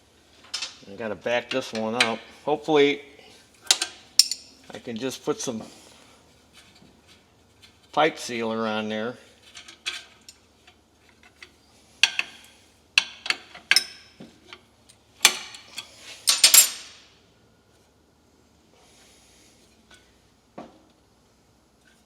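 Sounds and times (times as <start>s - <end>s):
hand tools clinking on metal: 3.7s - 4.5s.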